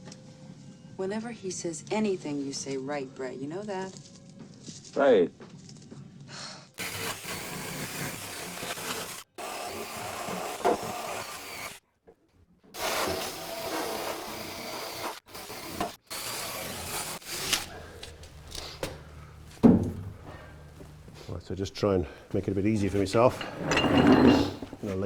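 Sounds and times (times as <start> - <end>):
tool scraping aluminium: 12.8 - 18.9, 22.7 - 25.0.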